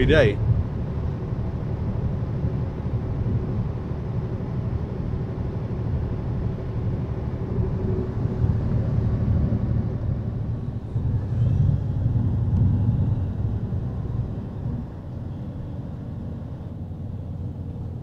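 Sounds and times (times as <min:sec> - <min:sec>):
road noise: 0:00.0 - 0:18.0
truck engine rumble: 0:00.0 - 0:18.0.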